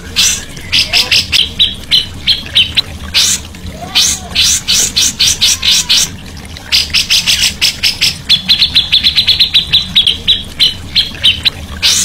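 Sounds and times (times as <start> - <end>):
songbird chattering: 0.1 - 3.4, 6.7 - 12.0.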